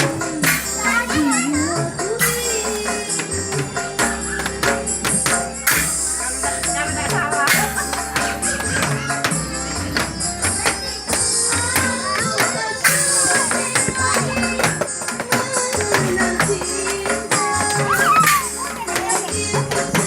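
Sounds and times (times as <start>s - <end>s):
steady bass beat: 0.0s - 11.3s
sharp percussion strokes: 0.0s - 20.0s.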